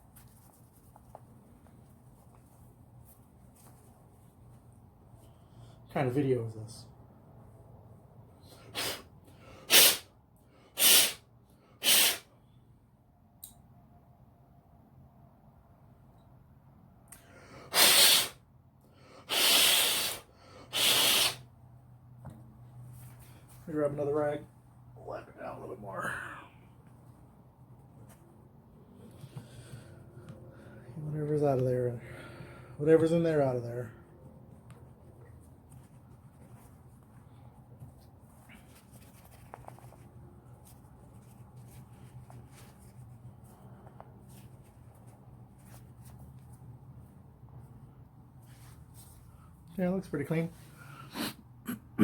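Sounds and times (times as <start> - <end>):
hard puffs of breath: 8.4 - 12.5, 17.2 - 21.5, 28.9 - 31.0, 50.6 - 51.5.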